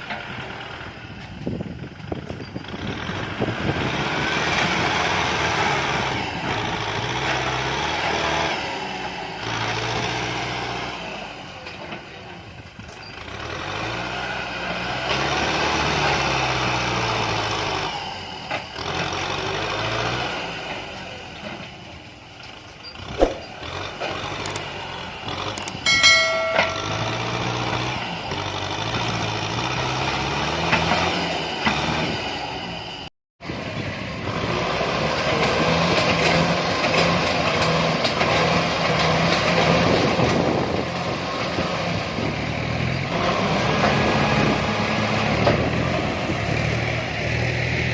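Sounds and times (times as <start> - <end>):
tractor diesel engine revving: 2.1 - 12.1, 13.1 - 25.8, 26.7 - 47.9.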